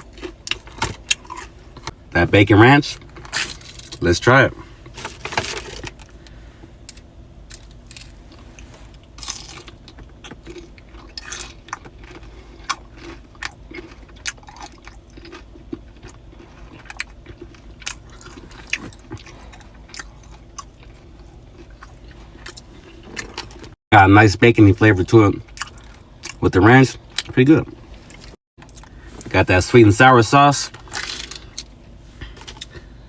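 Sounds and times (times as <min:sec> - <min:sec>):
chewing crunches: 0:00.0 - 0:02.0, 0:06.9 - 0:23.8, 0:25.4 - 0:26.4, 0:30.8 - 0:32.9.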